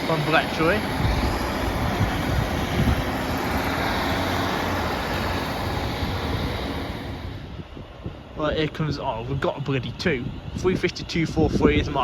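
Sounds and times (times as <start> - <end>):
rail and wheel noise: 0.0 - 12.0
train rumbling past: 0.0 - 12.0.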